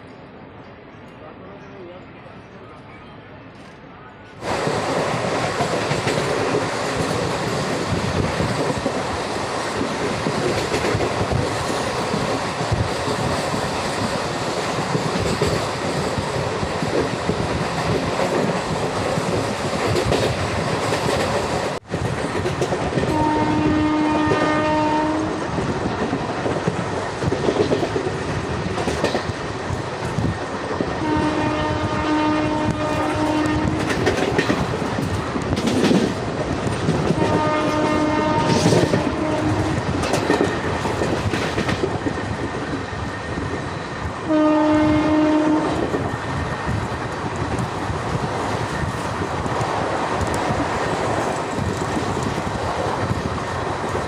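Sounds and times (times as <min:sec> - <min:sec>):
train wheels rushing on track: 0:02.3 - 0:54.0
train horn: 0:23.1 - 0:25.4, 0:31.0 - 0:34.0, 0:37.1 - 0:39.8, 0:44.2 - 0:45.9.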